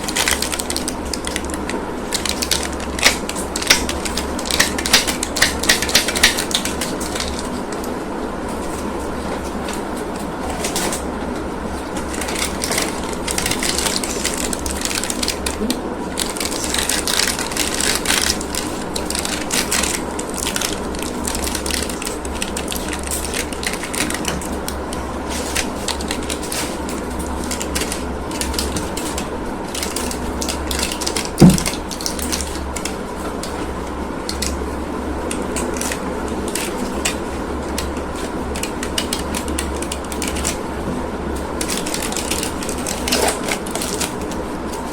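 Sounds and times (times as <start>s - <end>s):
plastic packaging crinkling: 0.0s - 7.9s, 11.8s - 33.6s, 41.5s - 44.4s.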